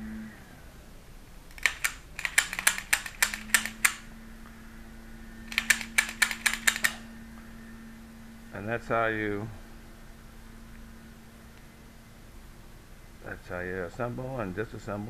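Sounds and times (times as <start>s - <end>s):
pistol clicking: 1.5s - 4.0s, 5.5s - 7.0s.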